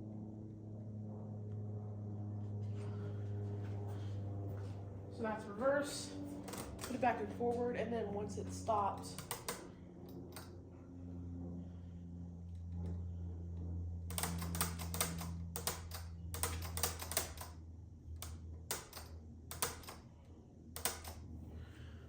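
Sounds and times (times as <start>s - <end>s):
ceiling fan motor hum: 0.0s - 22.0s
rapid clicking: 9.1s - 10.5s, 14.1s - 17.6s, 18.2s - 20.0s.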